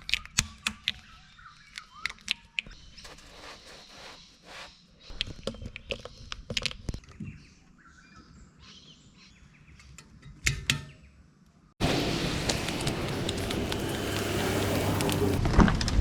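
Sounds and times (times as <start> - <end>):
birds chirping: 11.8 - 15.4.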